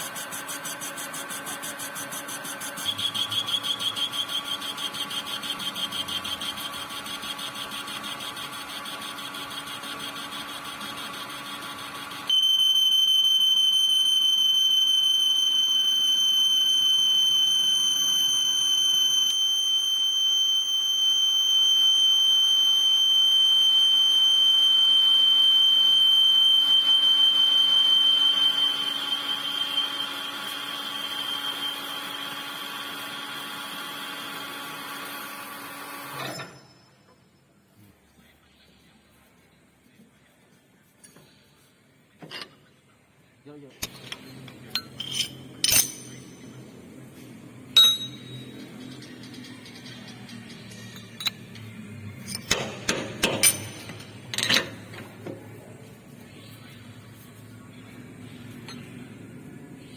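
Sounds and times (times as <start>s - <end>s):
cutting tool squealing: 0.0s - 11.2s
metal lathe running: 0.0s - 12.3s, 44.0s - 46.4s.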